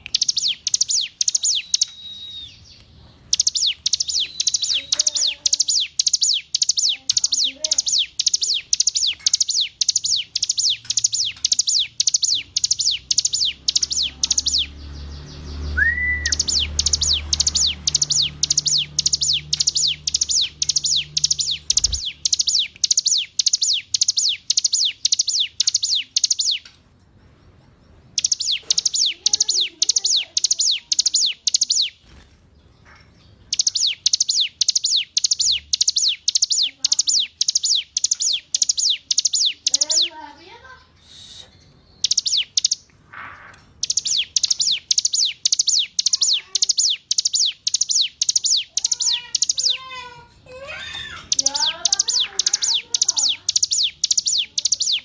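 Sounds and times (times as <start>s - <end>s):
bird singing sharp high notes: 0.0s - 26.7s, 28.2s - 32.2s, 33.5s - 40.3s, 43.8s - 49.9s, 50.8s - 55.0s.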